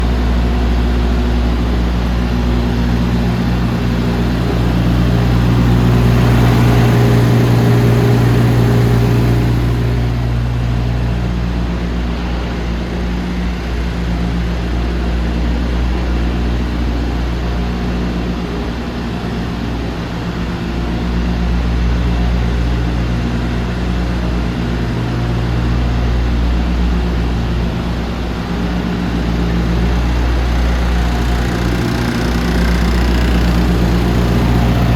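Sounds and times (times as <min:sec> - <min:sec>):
diesel truck engine idling: 0:00.0 - 0:11.6, 0:27.0 - 0:34.9.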